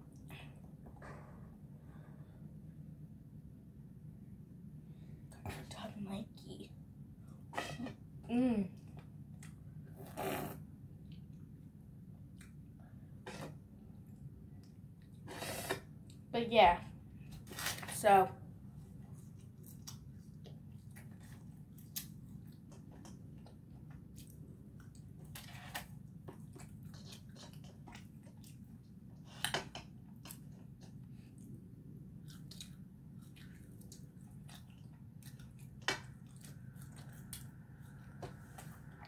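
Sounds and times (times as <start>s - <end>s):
steady low hum: 0.0s - 39.0s
soft chewing: 8.8s - 10.4s, 11.0s - 15.3s, 18.7s - 39.0s.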